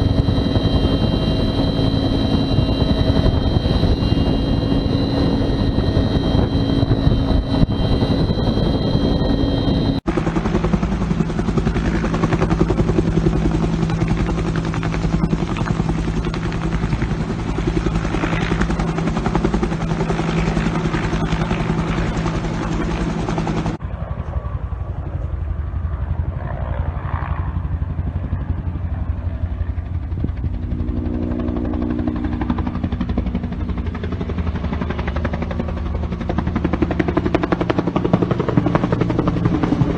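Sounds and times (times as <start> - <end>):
helicopter rotor beating: 0.0 - 39.9.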